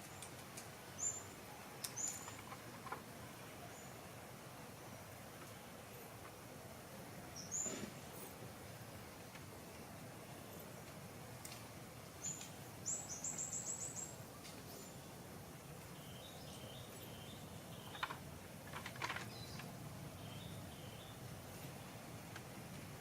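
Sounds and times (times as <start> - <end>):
steady background hiss: 0.0 - 23.0
birds calling: 15.8 - 22.1.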